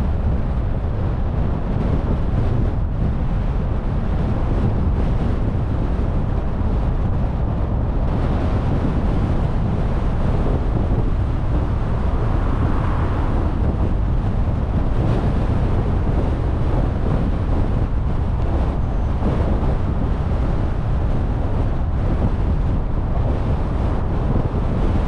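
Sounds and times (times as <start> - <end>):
car road noise rumble: 0.0 - 25.0
wind buffeting microphone: 0.0 - 25.0.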